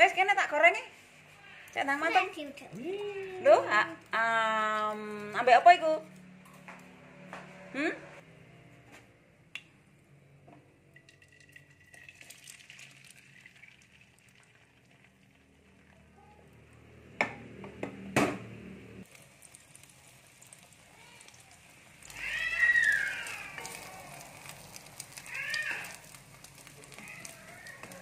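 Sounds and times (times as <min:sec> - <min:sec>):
egg sizzling in a wok: 0:11.1 - 0:16.1, 0:19.0 - 0:28.0.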